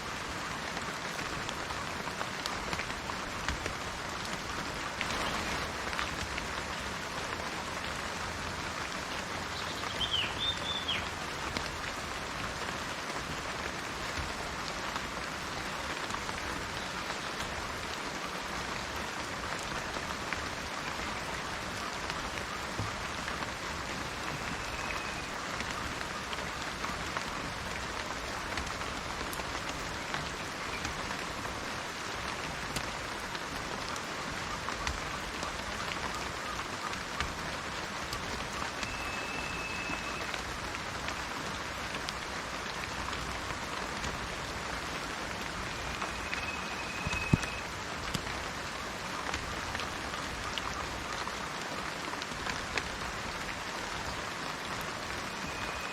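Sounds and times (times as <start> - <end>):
rain on plants and trees: 0.0 - 55.9.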